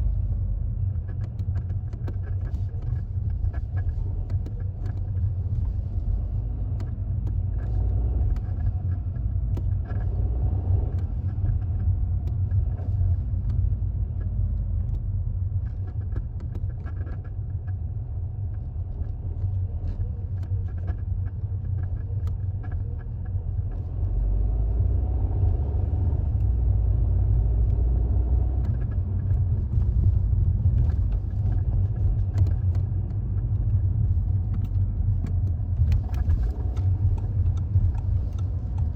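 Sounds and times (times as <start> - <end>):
car engine rumble: 0.0 - 38.9.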